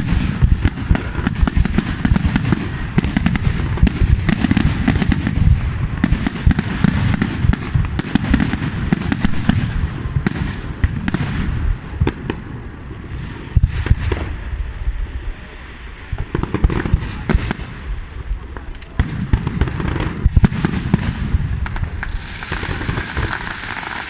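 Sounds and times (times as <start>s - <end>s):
crackling firework shells: 0.0s - 24.0s
fireworks booming bangs: 0.0s - 24.0s.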